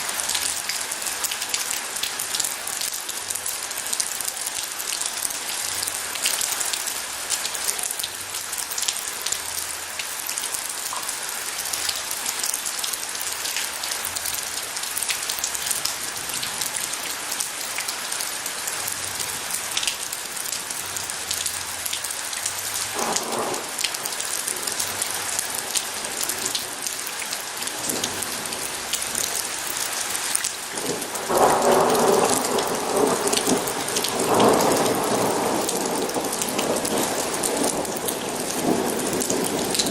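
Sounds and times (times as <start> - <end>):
heavy rain hissing: 0.0 - 39.9
thunder rolling: 23.0 - 23.8, 30.8 - 39.9.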